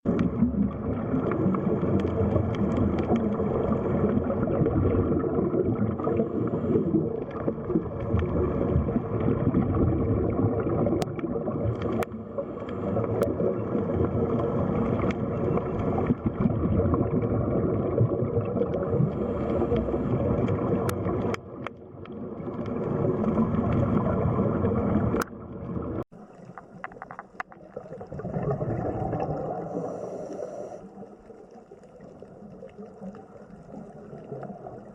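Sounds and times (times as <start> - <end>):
underwater rushing water: 0.0 - 34.9
sharp clicks underwater: 0.1 - 6.1, 7.2 - 29.4.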